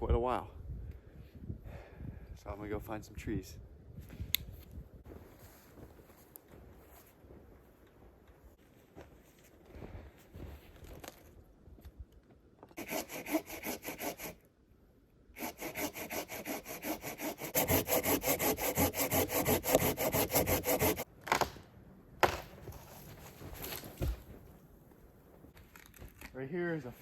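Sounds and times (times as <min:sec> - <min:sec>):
hand saw cutting wood: 0:12.8 - 0:14.4, 0:15.4 - 0:21.1.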